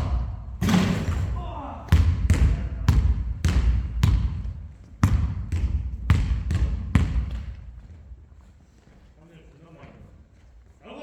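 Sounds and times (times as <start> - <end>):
basketball bouncing on gym floor: 0.0 - 8.2.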